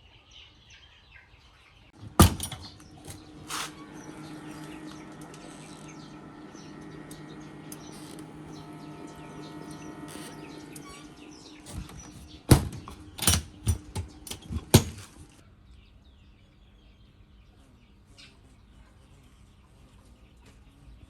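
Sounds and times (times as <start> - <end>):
sharp knocks: 2.0 - 9.1.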